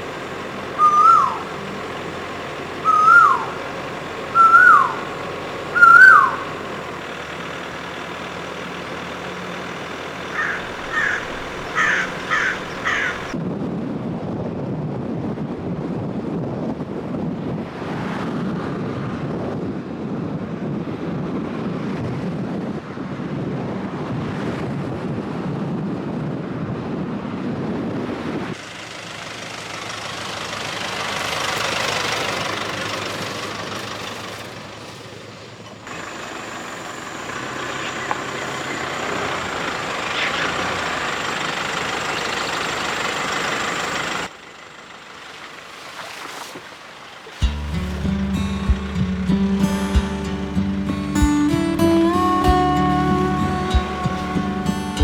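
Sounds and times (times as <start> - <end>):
bird chirps: 0.6 - 1.8, 2.8 - 6.8, 10.3 - 13.4
bird whistled calls: 0.6 - 1.8, 2.8 - 6.6.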